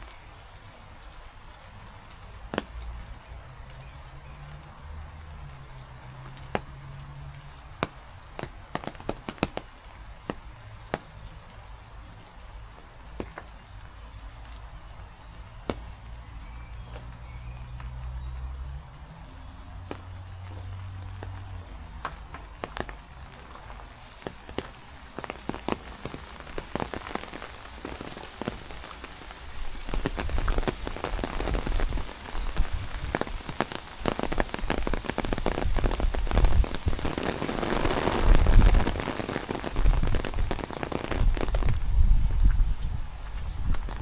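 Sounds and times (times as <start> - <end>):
heavy rain falling: 0.0 - 44.0
wind gusts on microphone: 25.2 - 44.0.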